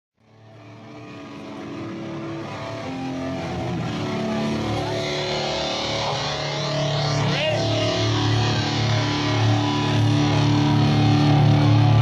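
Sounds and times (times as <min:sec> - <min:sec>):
distorted electric guitars and bass: 0:00.2 - 0:12.0.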